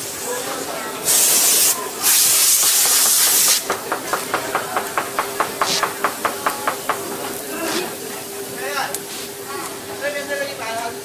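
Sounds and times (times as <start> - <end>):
compressed air hiss: 1.0 - 3.8, 5.0 - 6.2.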